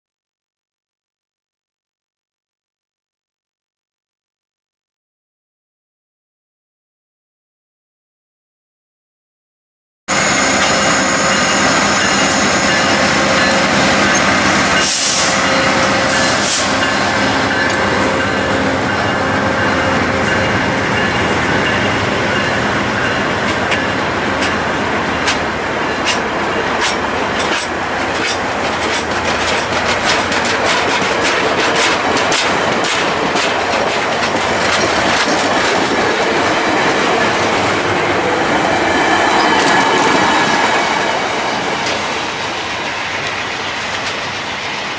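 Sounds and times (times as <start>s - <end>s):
passenger train rumbling past: 10.1s - 44.9s
wheels clicking over rail joints: 26.0s - 37.4s.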